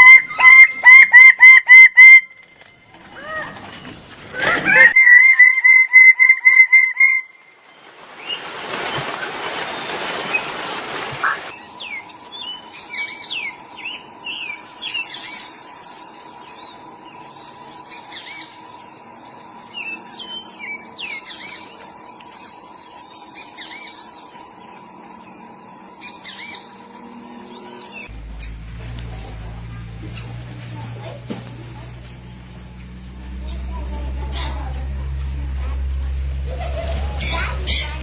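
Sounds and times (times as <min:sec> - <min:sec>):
songbird chirps: 0:11.2 - 0:35.3.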